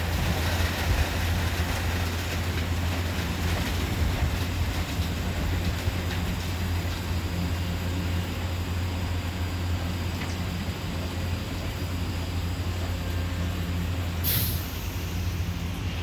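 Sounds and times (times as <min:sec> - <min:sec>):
short sharp hiss: 0:14.2 - 0:15.7
car wash humming: 0:14.2 - 0:16.0.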